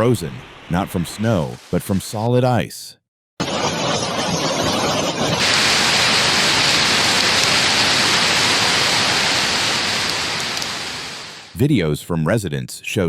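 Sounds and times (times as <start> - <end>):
hail and rain pelting down: 5.4 - 11.5.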